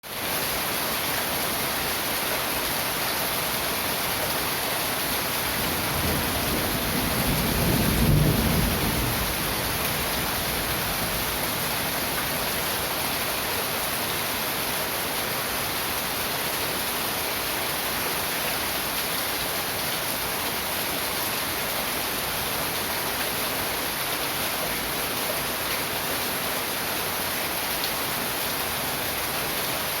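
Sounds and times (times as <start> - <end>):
heavy rain pouring: 0.0 - 30.0
low rumble of thunder: 5.6 - 11.4.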